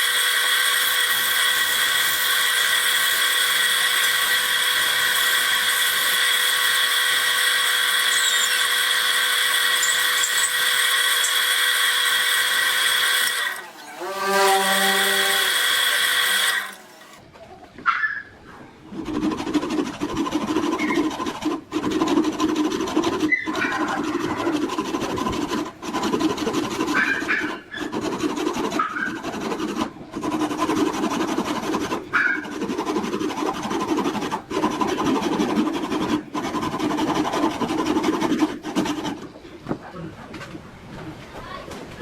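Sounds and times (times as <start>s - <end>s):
power tool working wood: 0.0s - 17.2s, 19.0s - 39.3s.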